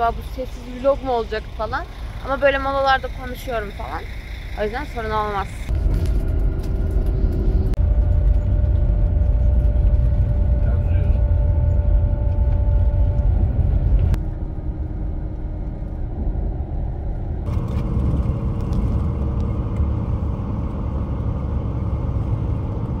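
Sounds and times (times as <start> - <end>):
faint steady tones: 0.0 - 5.7
bus engine and road rumble: 0.0 - 23.0.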